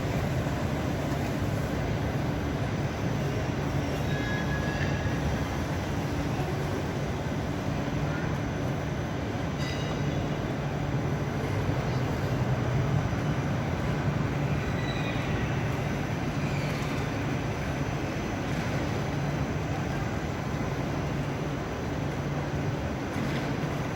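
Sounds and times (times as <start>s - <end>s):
electric train humming and rolling: 0.0s - 23.9s
faint high-pitched squeals: 14.5s - 17.1s.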